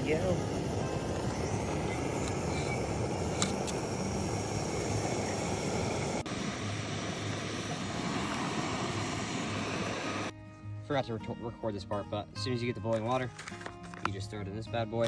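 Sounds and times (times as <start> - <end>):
gas stove roaring hiss: 0.0 - 10.3.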